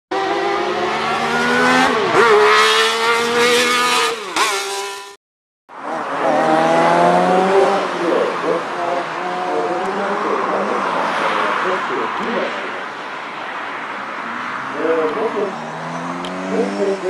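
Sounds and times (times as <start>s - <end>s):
engine revving: 0.1s - 5.2s, 5.8s - 11.4s, 14.2s - 17.0s
car engine accelerating: 5.8s - 11.2s, 14.2s - 17.0s.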